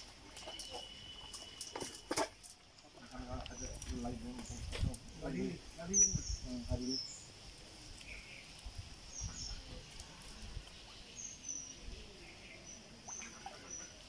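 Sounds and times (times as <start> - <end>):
small birds chirping: 3.0 - 14.0
steady high hiss: 3.5 - 14.0.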